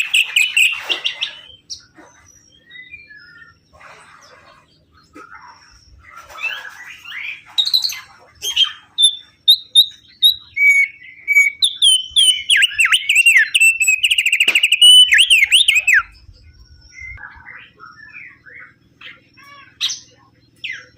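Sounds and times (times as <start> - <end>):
songbird singing whistled notes: 0.0 - 3.6, 7.6 - 20.9.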